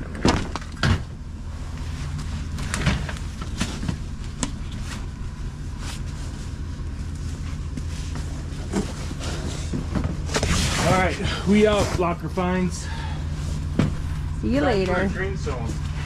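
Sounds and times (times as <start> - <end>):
vehicle engine idling: 11.0 - 16.0.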